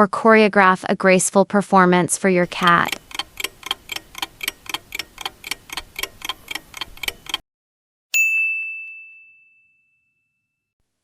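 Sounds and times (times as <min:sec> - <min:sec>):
clock ticking fast: 0:02.4 - 0:07.4
bell ding: 0:08.2 - 0:10.6.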